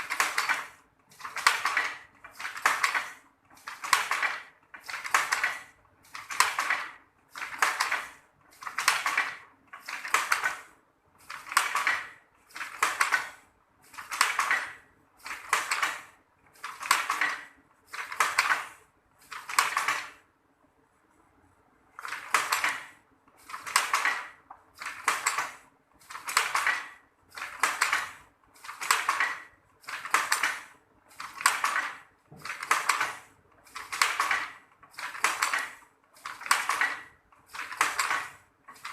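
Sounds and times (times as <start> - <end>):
loom rattling wooden clatter: 0.0 - 20.2, 22.0 - 38.9.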